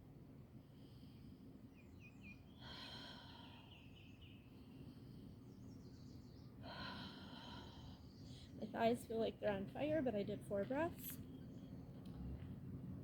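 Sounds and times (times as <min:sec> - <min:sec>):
low steady rumble: 0:04.6 - 0:13.0.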